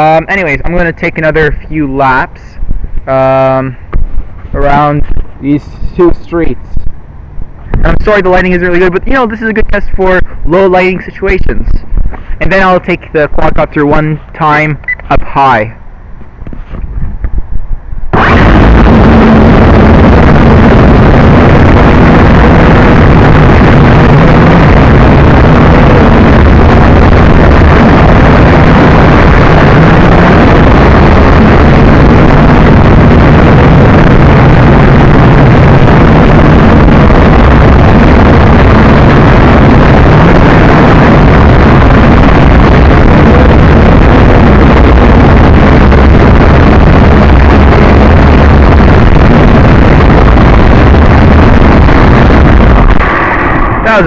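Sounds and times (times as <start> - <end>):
wind buffeting microphone: 0.0 - 10.5, 11.2 - 54.0
drone motors humming: 14.8 - 54.0.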